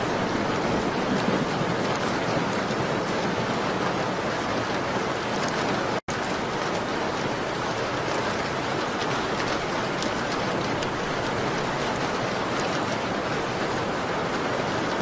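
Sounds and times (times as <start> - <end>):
rain on a window: 0.0 - 15.0.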